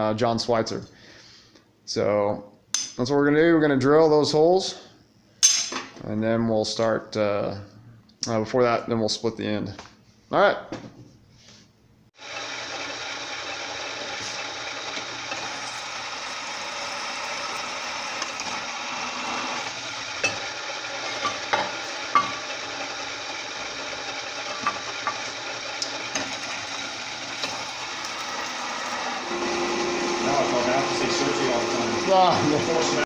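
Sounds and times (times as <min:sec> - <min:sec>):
electric drill boring into steel: 0:12.2 - 0:33.0.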